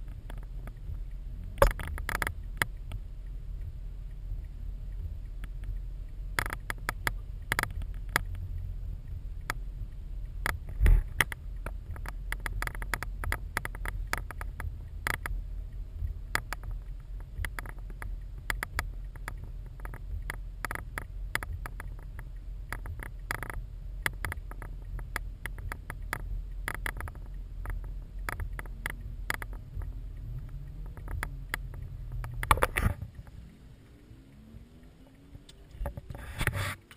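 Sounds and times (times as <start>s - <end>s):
low steady rumble: 0.0s - 36.9s
raindrops tapping on camera housing: 0.0s - 36.9s.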